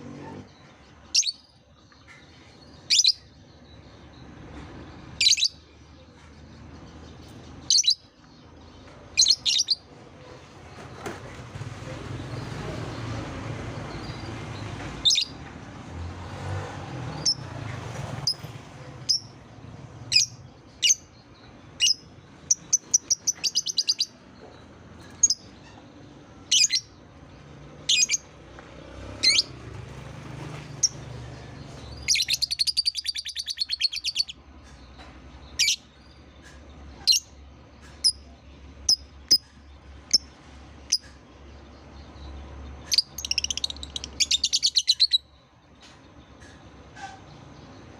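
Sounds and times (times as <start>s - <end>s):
bird trill: 1.1s - 3.4s, 7.6s - 8.1s, 9.2s - 9.9s, 21.8s - 24.2s, 31.9s - 34.4s, 42.8s - 45.4s
lovebird chirping: 1.1s - 3.9s, 7.6s - 8.1s, 9.2s - 9.9s, 20.1s - 25.8s, 27.9s - 28.3s, 31.6s - 34.4s, 42.8s - 45.3s
bird rapid chatter: 21.8s - 24.2s, 29.2s - 38.2s, 42.9s - 45.3s.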